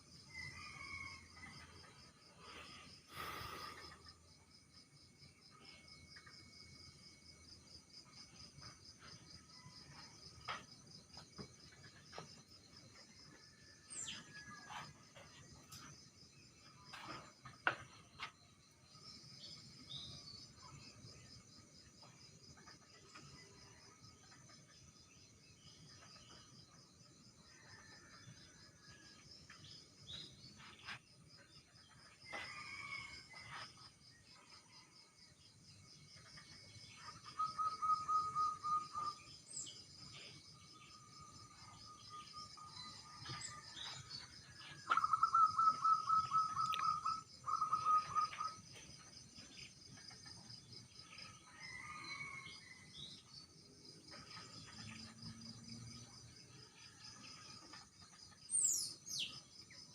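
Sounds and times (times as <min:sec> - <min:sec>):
crickets chirring: 0:29.7 - 0:53.1
bird calls: 0:37.0 - 0:39.2, 0:44.6 - 0:48.9.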